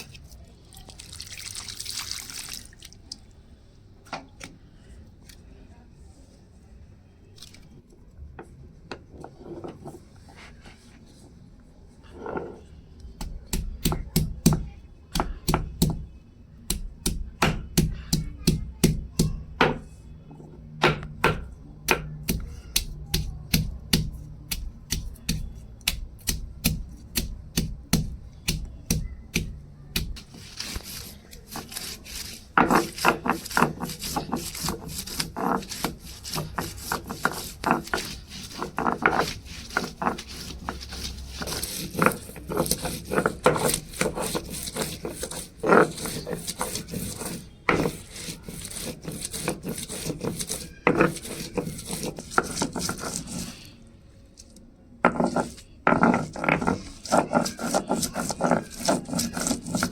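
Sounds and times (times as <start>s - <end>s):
knife chopping on cutting board: 20.8s - 53.4s.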